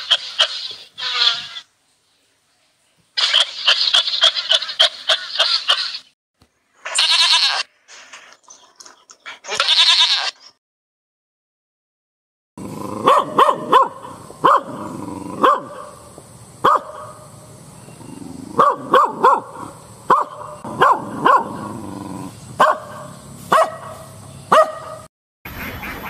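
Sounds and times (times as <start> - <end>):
dog barking: 13.0 - 14.8, 15.4 - 16.0, 16.6 - 17.2, 18.6 - 21.7, 22.6 - 25.1.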